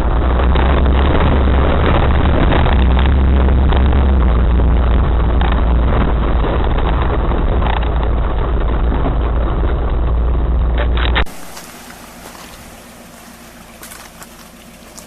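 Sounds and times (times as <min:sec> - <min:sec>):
off-road vehicle engine drone: 0:00.0 - 0:15.0
vehicle rattles and knocks: 0:00.0 - 0:15.0
even hiss: 0:11.3 - 0:15.0.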